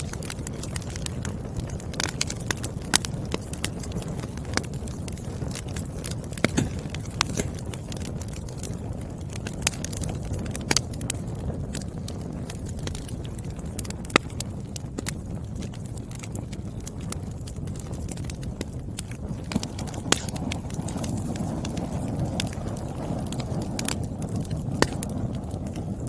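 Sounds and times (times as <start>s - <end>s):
fire pops and snaps: 0.0s - 26.0s
firewood crackling: 0.0s - 26.0s
low rush of flames: 0.0s - 26.0s.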